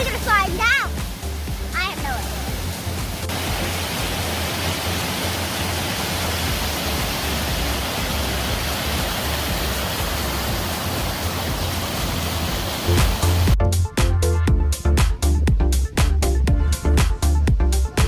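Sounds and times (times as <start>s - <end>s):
waterfall and stream rushing: 0.0s - 13.6s.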